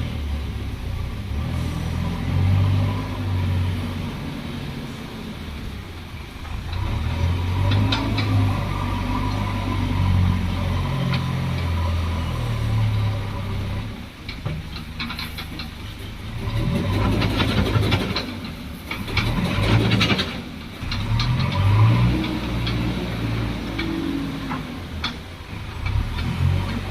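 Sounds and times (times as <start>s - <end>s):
diesel engines running under load: 0.0s - 26.9s
knocks and clatter: 5.6s - 26.9s.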